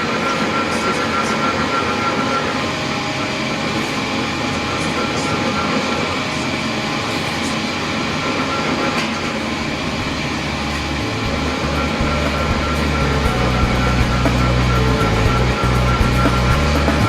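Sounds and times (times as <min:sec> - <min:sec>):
industrial machinery running: 0:00.0 - 0:17.0
low hum: 0:09.4 - 0:17.0.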